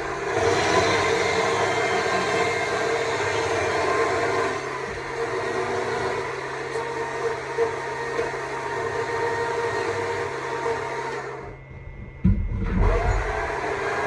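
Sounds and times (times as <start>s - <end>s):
loud low thump: 12.2s - 13.2s.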